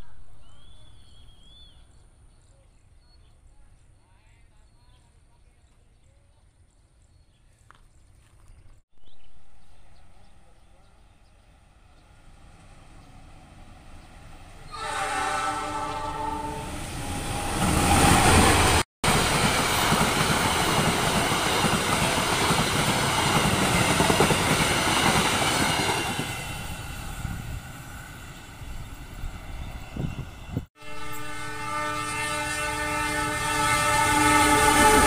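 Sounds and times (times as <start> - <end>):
train horn: 14.7 - 16.8, 30.8 - 35.0
train wheels rumbling on rails: 16.7 - 31.3.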